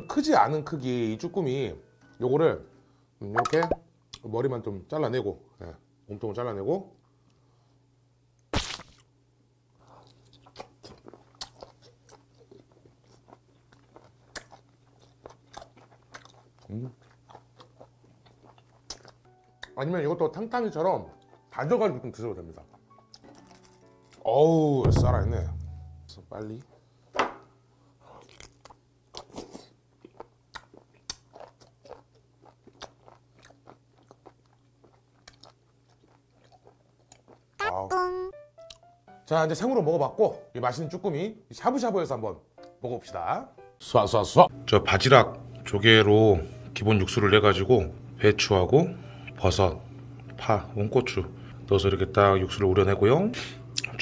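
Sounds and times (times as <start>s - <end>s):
mouth chewing with squelches: 9.8s - 19.8s, 21.1s - 21.5s, 22.6s - 24.2s, 28.2s - 37.7s, 53.8s - 54.0s
faint low hum: 24.6s - 39.0s
short mouth clicks: 53.8s - 54.0s.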